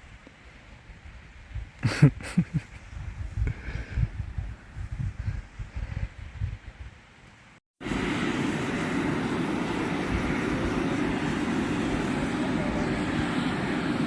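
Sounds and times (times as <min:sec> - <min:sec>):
steam vent rushing hiss: 0:07.8 - 0:14.0.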